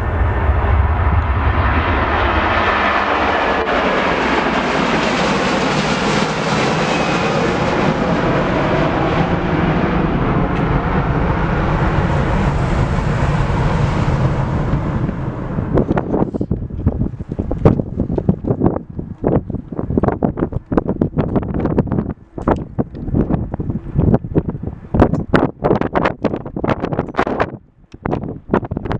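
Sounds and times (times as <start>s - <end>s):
jet airliner engines passing: 0.0s - 28.5s
wind buffeting microphone: 0.0s - 28.9s.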